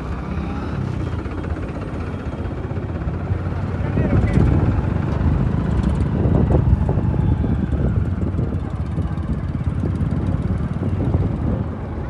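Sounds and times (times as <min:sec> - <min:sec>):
tractor engine rumbling: 0:00.0 - 0:12.0.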